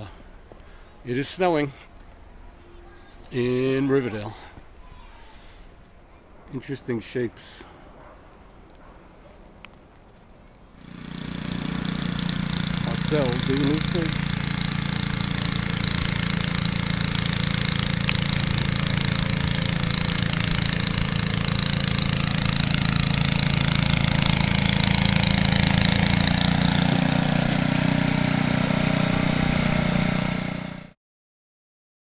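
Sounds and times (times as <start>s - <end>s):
snow spraying: 10.8s - 31.0s
snowblower engine running: 10.8s - 31.0s.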